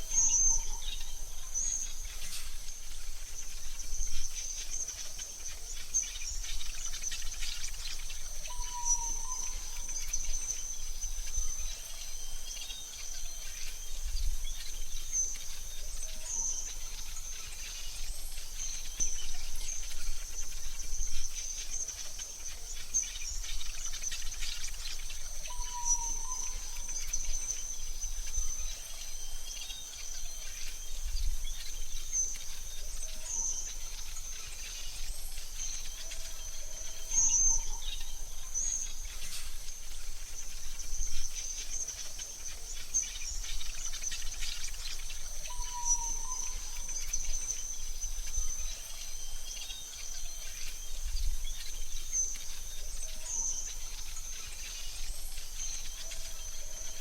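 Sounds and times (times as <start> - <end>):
bird chirps and calls: 3.4 - 57.0.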